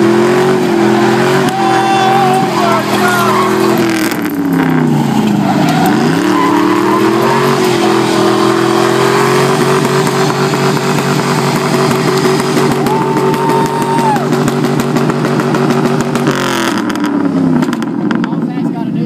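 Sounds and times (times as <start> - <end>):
truck engine revving hard: 0.0 - 18.6.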